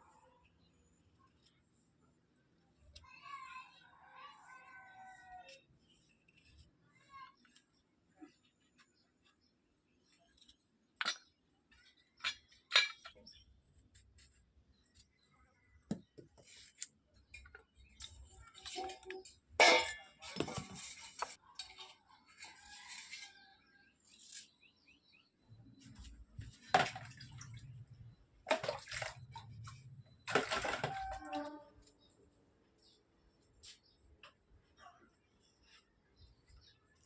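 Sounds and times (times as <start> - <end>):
kitchen vessels handled: 11.9 - 13.3, 17.4 - 23.3, 26.5 - 27.6, 28.5 - 31.6
water splashing and pouring: 28.5 - 31.6.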